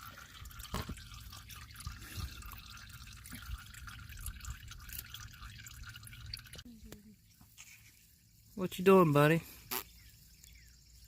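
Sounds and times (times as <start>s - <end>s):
oil dripping into bucket: 0.0s - 8.6s.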